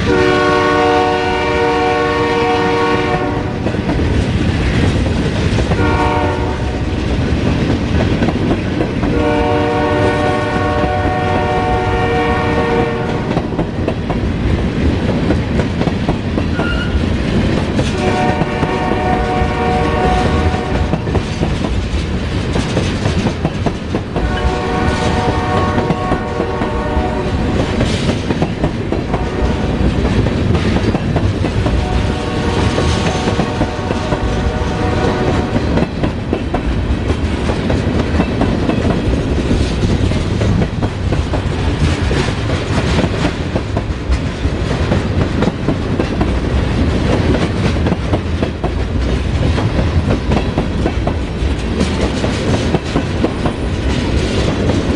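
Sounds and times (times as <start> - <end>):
locomotive horn blasts: 0.0 - 3.6, 5.8 - 6.7, 9.1 - 13.3, 17.9 - 21.0, 24.2 - 27.4, 29.1 - 29.8, 31.8 - 35.6
train rumbling past: 0.0 - 54.9
wheel clatter over rail joints: 20.1 - 26.7, 27.3 - 54.9.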